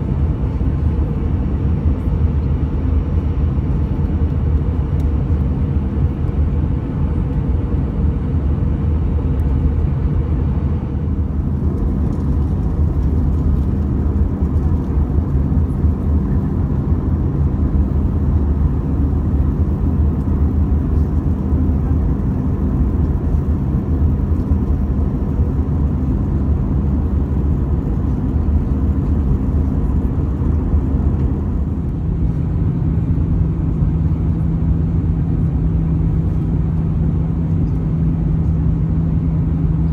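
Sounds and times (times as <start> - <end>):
aircraft cabin engine drone: 0.0 - 39.9
low hum: 9.4 - 39.9.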